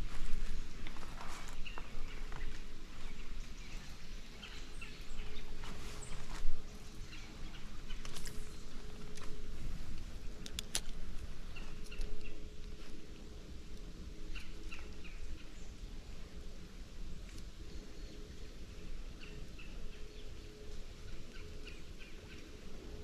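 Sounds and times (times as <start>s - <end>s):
birds chirping: 0.0s - 16.8s, 17.4s - 23.0s.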